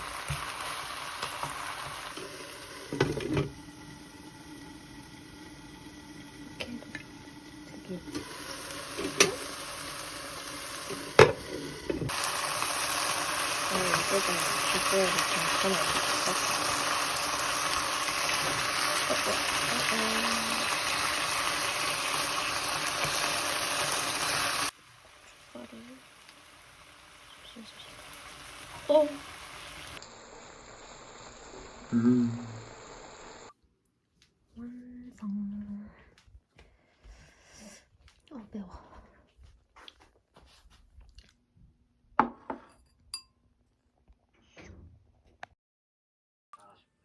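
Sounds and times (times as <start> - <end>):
food sizzling in a pan: 0.0 - 33.5.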